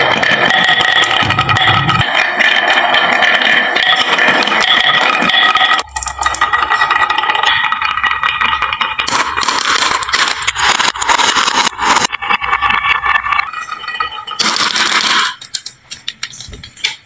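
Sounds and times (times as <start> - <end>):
marbles clattering down wooden run: 0.0 - 16.3
low rolling rumble: 1.0 - 2.1.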